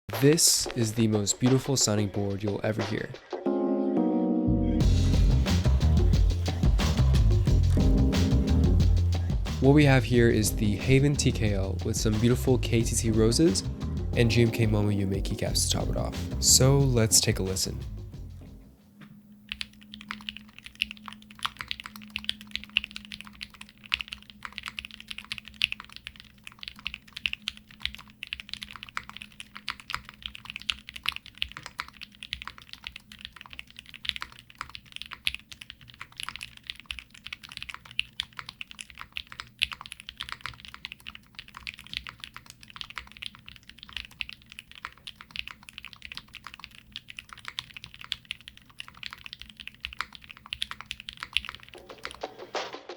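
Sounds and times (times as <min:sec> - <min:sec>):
mechanical keyboard typing: 0:19.4 - 0:52.4.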